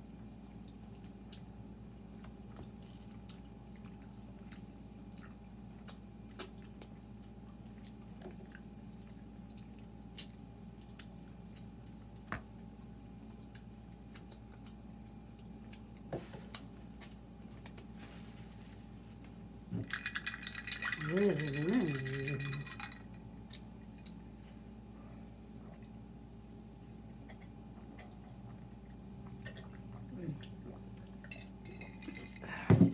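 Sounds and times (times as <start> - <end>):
people chewing: 0.0 - 18.8
steady low hum: 0.0 - 32.9
mouth clicks and smacks: 4.4 - 7.0.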